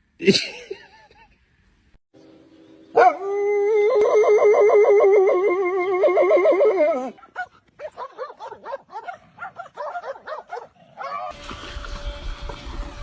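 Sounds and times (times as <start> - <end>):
dog howling: 3.0 - 7.2.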